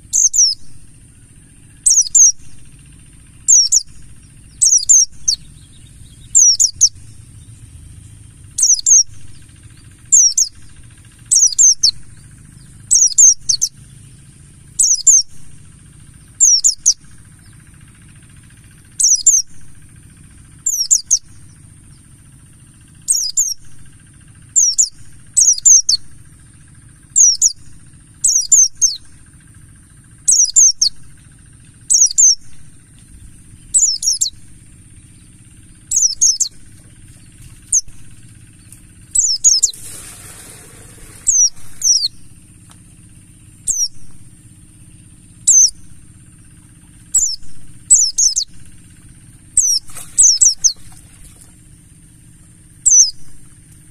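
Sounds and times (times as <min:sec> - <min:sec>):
birds chirping: 0:00.0 - 0:53.9
low hum: 0:00.0 - 0:53.9
rustle: 0:36.0 - 0:43.1.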